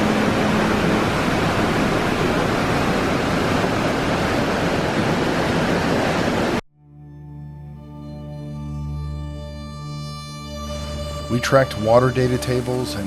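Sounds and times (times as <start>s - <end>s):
water rushing: 0.0s - 6.6s, 10.6s - 13.0s.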